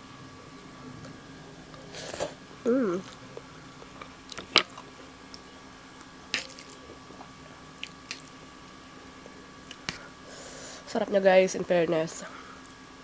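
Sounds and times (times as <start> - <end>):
faint steady hum: 0.0 - 13.0
person chewing food: 3.0 - 8.3
short wet smacks: 6.4 - 6.8.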